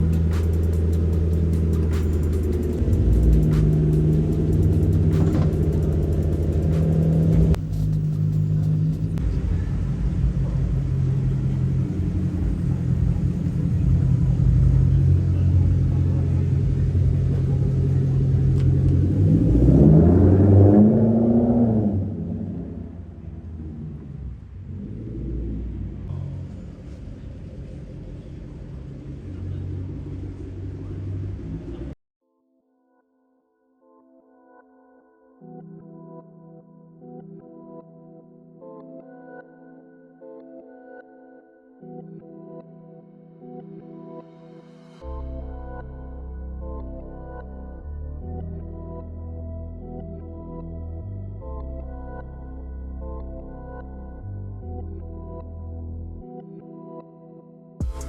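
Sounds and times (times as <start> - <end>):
car engine rumbling: 0.0 - 32.0.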